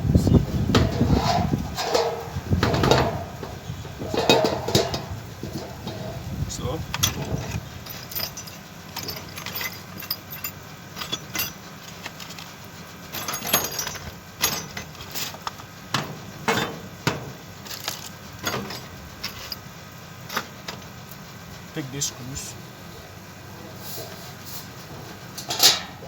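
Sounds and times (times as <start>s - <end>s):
metallic clinks and knocks: 0.7s - 6.3s, 6.9s - 12.5s, 13.1s - 20.9s, 25.0s - 26.0s.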